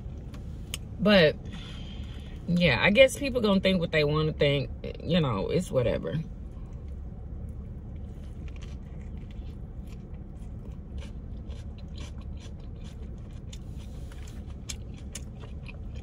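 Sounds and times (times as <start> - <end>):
steady low hum: 0.0 - 16.0
person chewing crunchy food: 7.6 - 16.0.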